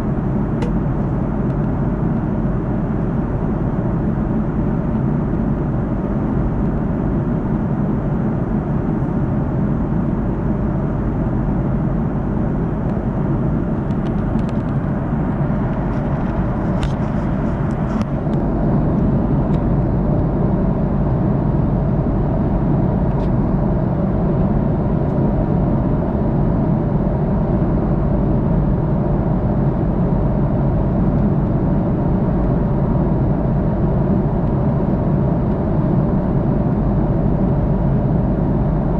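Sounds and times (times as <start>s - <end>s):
airliner cabin noise: 0.0s - 26.7s.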